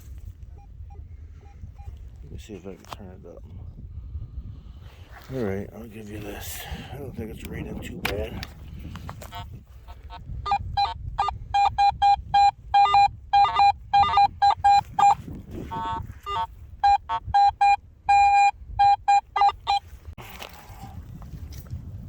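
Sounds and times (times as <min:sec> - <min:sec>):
metal detector beeps: 0:00.5 - 0:02.0, 0:10.5 - 0:19.8.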